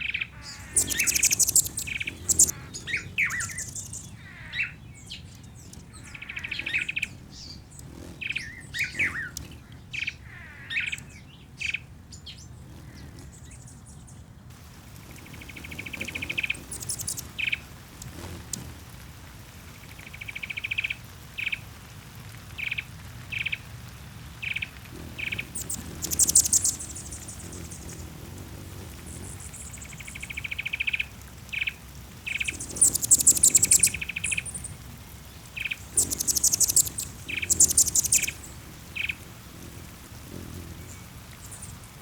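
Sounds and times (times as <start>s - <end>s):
high fast bird trills: 0.0s - 11.8s, 15.2s - 18.6s, 24.5s - 42.0s
bird chirps: 0.0s - 14.2s, 15.2s - 18.6s, 24.4s - 42.0s.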